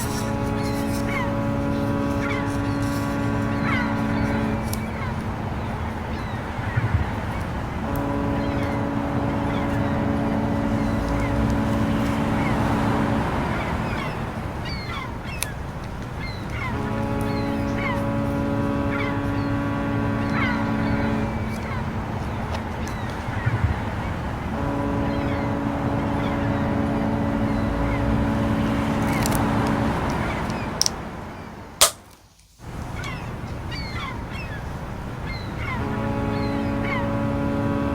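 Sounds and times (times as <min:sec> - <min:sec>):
ship's horn blast: 0:00.0 - 0:32.0, 0:32.7 - 0:37.9
birds chirping: 0:00.0 - 0:32.1, 0:32.7 - 0:37.9
constant rushing noise: 0:00.0 - 0:37.9
sharp click: 0:31.8 - 0:32.2.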